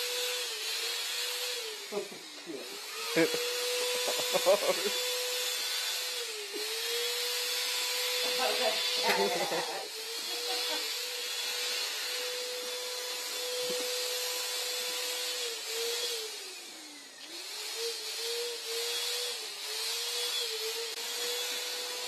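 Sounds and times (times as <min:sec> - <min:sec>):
electric paint sprayer whining and hissing: 0:00.0 - 0:22.0.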